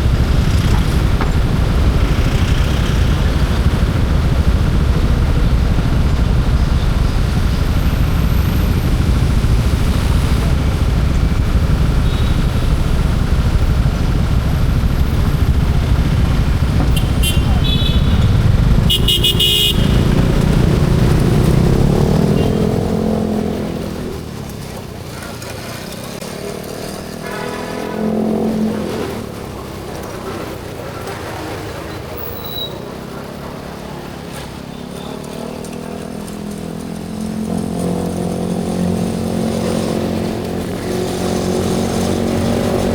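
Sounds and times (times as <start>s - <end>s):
wind rumble: 0.0s - 24.9s
motorcycle engine: 0.0s - 42.9s
vehicle horn honking: 16.8s - 20.6s, 22.2s - 22.8s, 27.1s - 28.7s.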